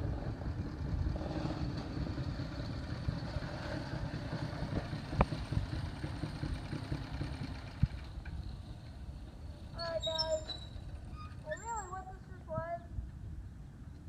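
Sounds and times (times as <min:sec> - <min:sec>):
small engine idling roughly: 0:02.0 - 0:08.7.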